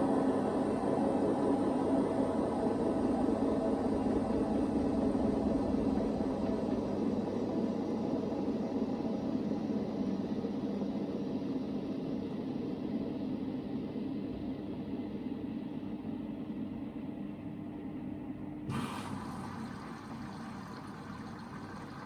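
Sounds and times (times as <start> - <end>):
washing machine drum whirring: 18.7 - 22.0.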